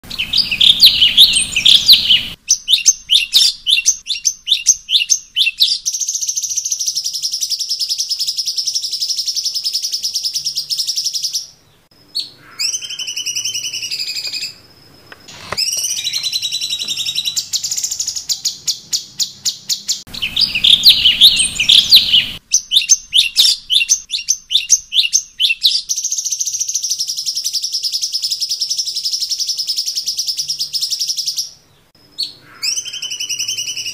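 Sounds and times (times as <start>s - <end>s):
songbird singing trills: 0.0s - 33.9s.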